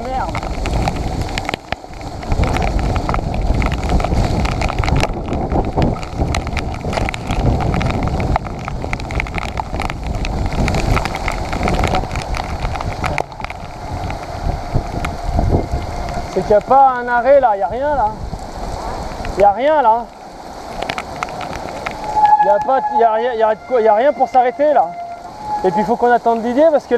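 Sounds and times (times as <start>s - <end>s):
bike rattling and knocking: 0.0s - 16.8s
wind buffeting microphone: 0.0s - 26.9s.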